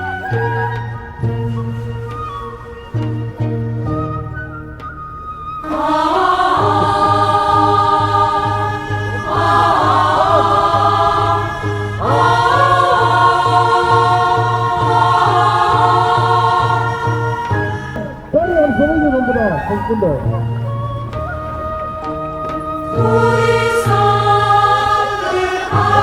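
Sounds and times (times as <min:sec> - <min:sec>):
voices singing together: 0:00.0 - 0:26.0
steady low beat: 0:17.9 - 0:25.0.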